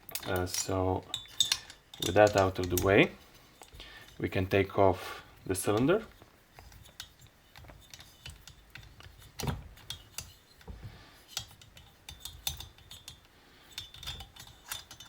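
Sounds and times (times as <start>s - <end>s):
metallic clicks and clinks: 0.0s - 4.2s, 11.3s - 15.0s.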